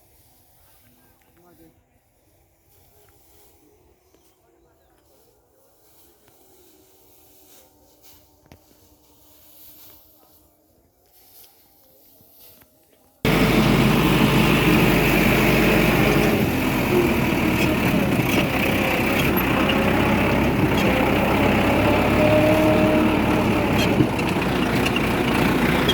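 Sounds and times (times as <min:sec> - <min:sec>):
tractor engine running: 0:13.3 - 0:25.9.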